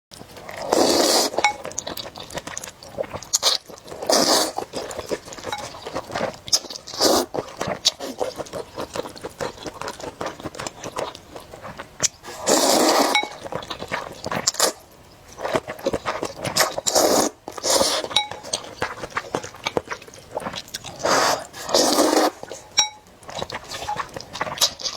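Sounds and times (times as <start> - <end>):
crunching and chewing: 0.1 - 24.9
utensils clinking against dishes: 18.0 - 18.7, 22.8 - 23.0.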